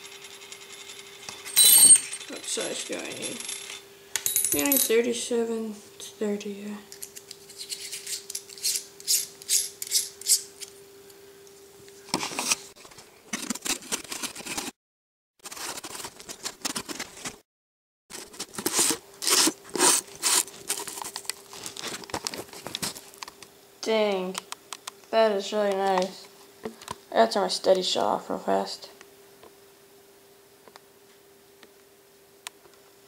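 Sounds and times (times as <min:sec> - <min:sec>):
faint steady hum: 0:00.0 - 0:14.6.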